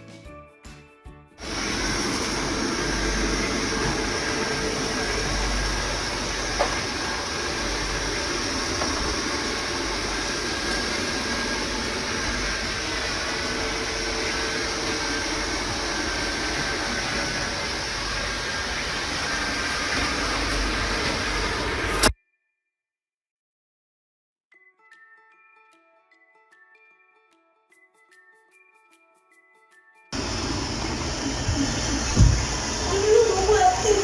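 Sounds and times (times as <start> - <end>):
robot vacuum whirring: 1.4 - 22.1, 30.2 - 34.0.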